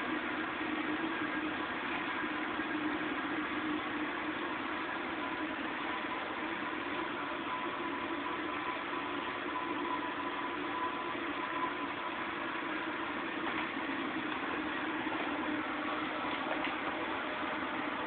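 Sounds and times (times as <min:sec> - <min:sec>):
faint fire crackles: 0:00.0 - 0:18.0
steady hum and hiss: 0:00.0 - 0:18.0
wood fire burning: 0:00.0 - 0:18.0.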